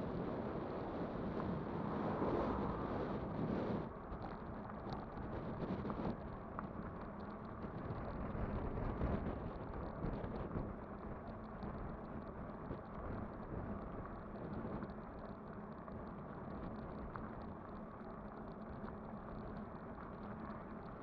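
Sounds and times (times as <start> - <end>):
e-bike rolling on road: 0.0 - 21.0.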